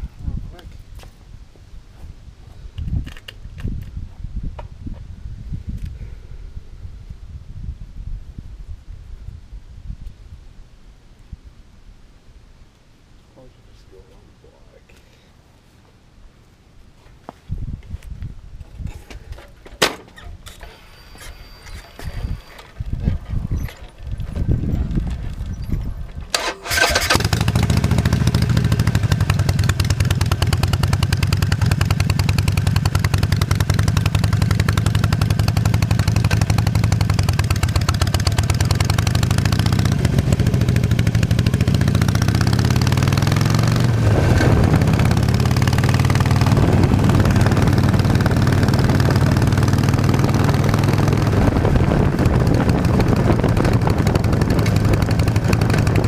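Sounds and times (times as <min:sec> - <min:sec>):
motorcycle engine starting and running: 0:20.0 - 0:56.0.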